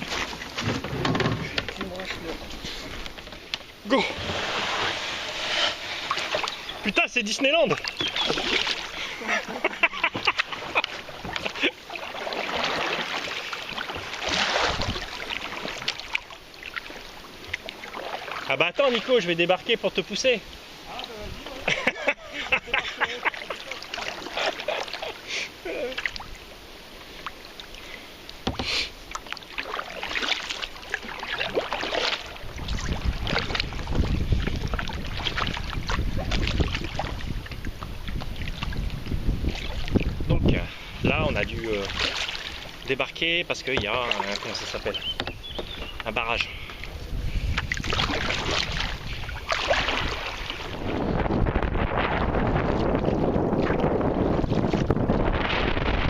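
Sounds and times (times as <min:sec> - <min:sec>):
paddle splashes: 0:00.0 - 0:56.0
rushing splashing water: 0:00.0 - 0:56.0
wind buffeting microphone: 0:14.3 - 0:15.3, 0:32.3 - 0:42.7, 0:44.6 - 0:56.0
knocks on kayak hull: 0:45.2 - 0:46.1.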